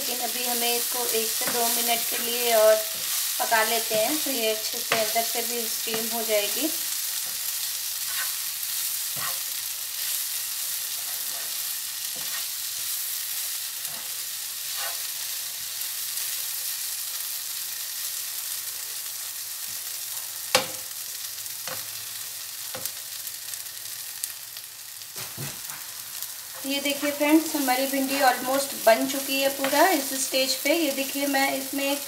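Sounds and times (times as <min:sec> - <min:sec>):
vegetables sizzling in oil: 0:00.0 - 0:32.0
spatula scraping a pan: 0:00.8 - 0:15.8
spatula knocking on pan: 0:04.9 - 0:05.2, 0:20.5 - 0:20.8.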